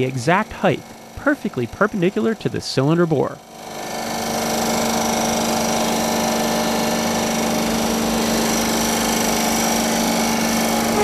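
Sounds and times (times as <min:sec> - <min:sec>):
machine hum: 0:04.0 - 0:11.0.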